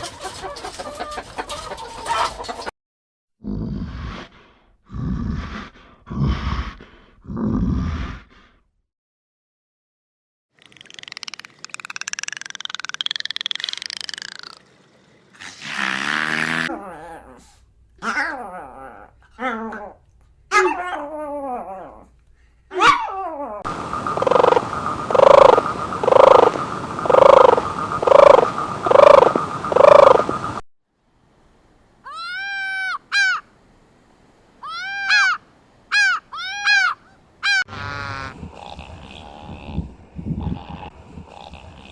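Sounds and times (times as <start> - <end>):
animal calls: 22.7 - 30.4, 32.0 - 33.5, 34.6 - 41.9.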